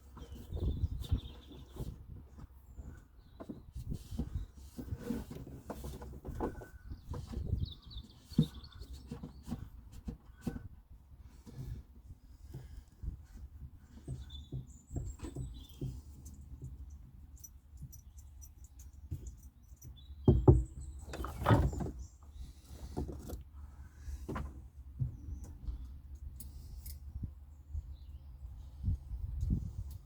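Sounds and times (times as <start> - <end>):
clatter of knocks: 19.1 - 22.0.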